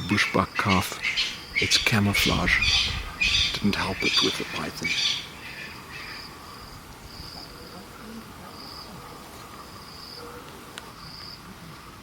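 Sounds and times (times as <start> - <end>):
insect chirping trills: 0.0 - 8.9, 9.6 - 10.2.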